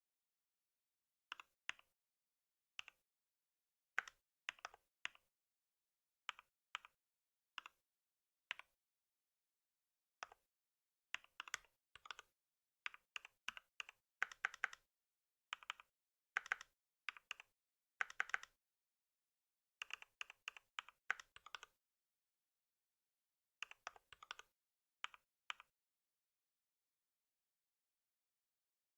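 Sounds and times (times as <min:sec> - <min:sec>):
typing on computer keyboard: 0:12.9 - 0:14.8, 0:15.5 - 0:18.6.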